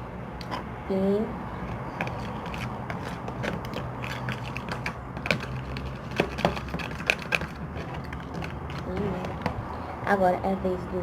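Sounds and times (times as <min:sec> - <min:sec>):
objects clicking and tapping: 0:01.7 - 0:09.6.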